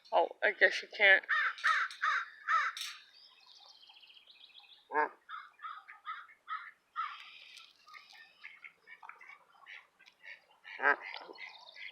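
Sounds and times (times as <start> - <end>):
birds chirping: 0.0 - 11.9
crow cawing: 1.3 - 2.8, 5.3 - 7.4.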